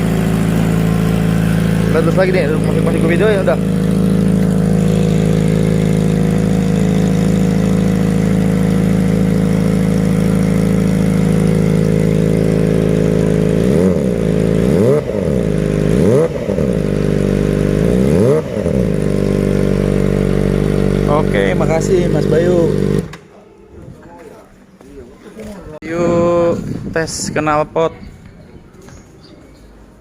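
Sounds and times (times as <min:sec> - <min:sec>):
motorcycle engine idling and revving: 0:00.0 - 0:23.3.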